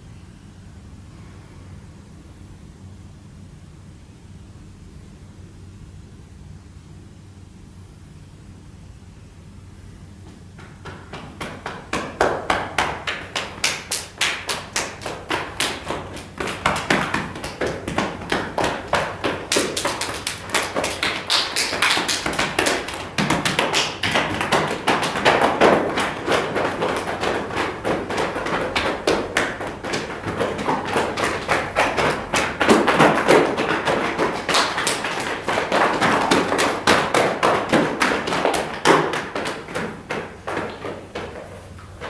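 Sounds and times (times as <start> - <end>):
rapid tapping and thudding: 10.3 - 42.0.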